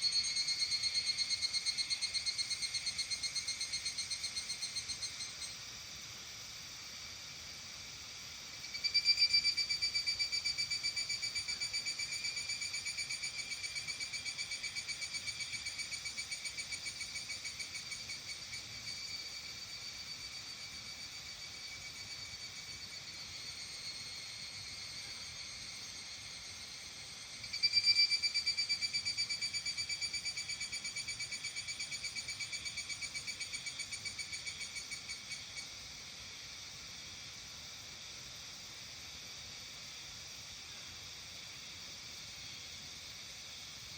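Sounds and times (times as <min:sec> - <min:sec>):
insects singing in chorus: 0:00.0 - 0:43.9
loud pulsed insect call: 0:00.0 - 0:43.9
animal pulsed trill call: 0:27.5 - 0:31.7.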